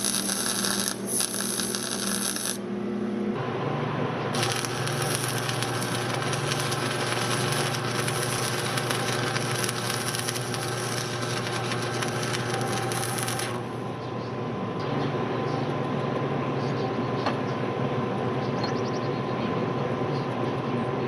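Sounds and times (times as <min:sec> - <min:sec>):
arc welding crackle: 0:00.0 - 0:02.6, 0:04.3 - 0:13.8
low shop hum: 0:00.0 - 0:21.0.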